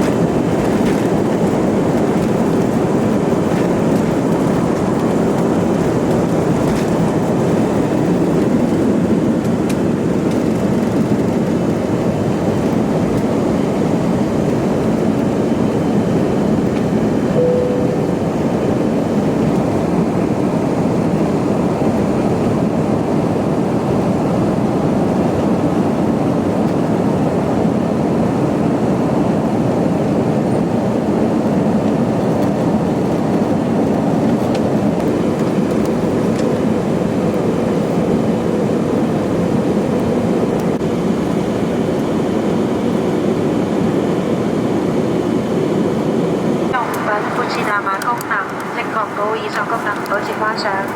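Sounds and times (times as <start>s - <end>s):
jet engine cabin roar: 0.0s - 50.9s
faint short tone: 17.4s - 18.4s.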